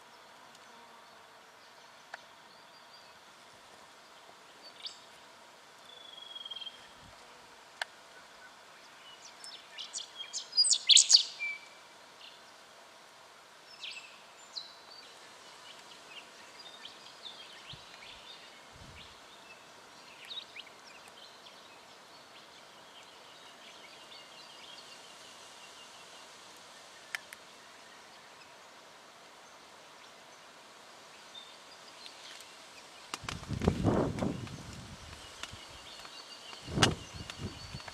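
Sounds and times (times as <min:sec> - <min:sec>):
faint outdoor hiss: 0:00.0 - 0:37.9
bird high calls: 0:09.8 - 0:11.7.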